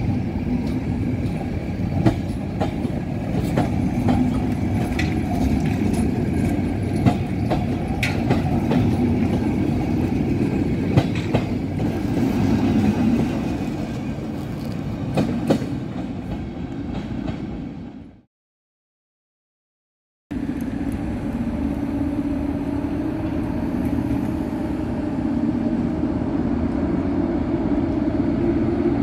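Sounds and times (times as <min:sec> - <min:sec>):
train wheels rumbling on rail: 0:00.0 - 0:18.3, 0:20.3 - 0:29.0
wheels clicking over rail joints: 0:00.5 - 0:17.4.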